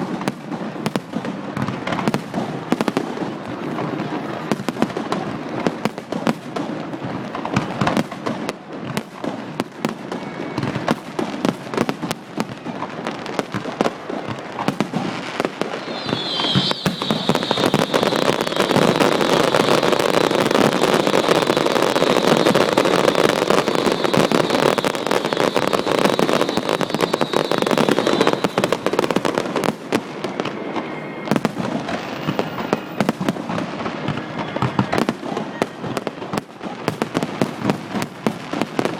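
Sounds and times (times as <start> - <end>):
fireworks bangs and crackling: 0.0 - 38.9
high firework whistle: 9.9 - 11.9, 14.4 - 36.1.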